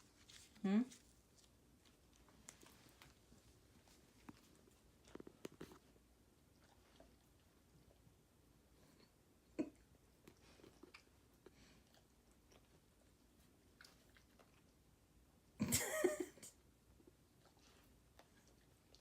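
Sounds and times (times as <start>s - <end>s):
dog chewing with wet smacks: 1.2s - 8.7s, 9.8s - 15.2s, 17.0s - 19.0s.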